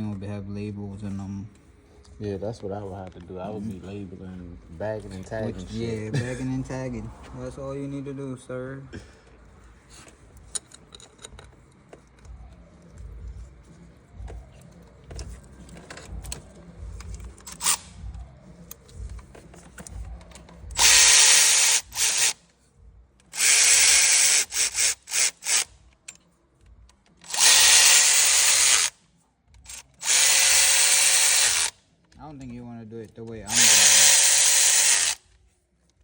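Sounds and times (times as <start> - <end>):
tools clinking: 9.9 - 13.3
power driver spinning bolts: 18.7 - 22.4, 23.3 - 26.2, 26.9 - 28.9, 29.7 - 31.7, 33.3 - 35.2.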